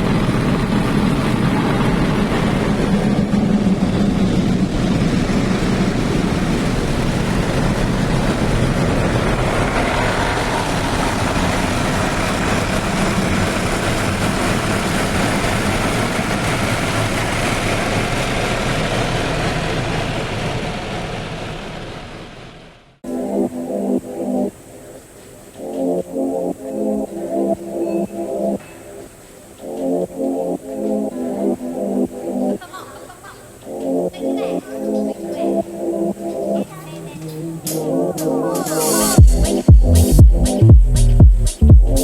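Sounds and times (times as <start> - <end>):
loud machine noise: 0.0 - 24.4.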